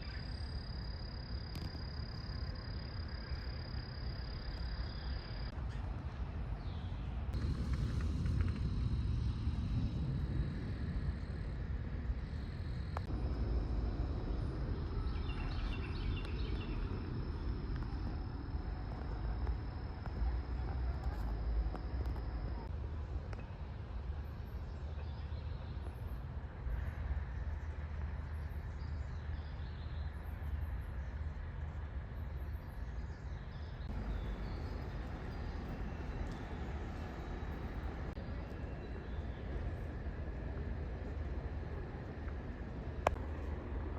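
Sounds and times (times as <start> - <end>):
low rumble: 7.1 - 23.3.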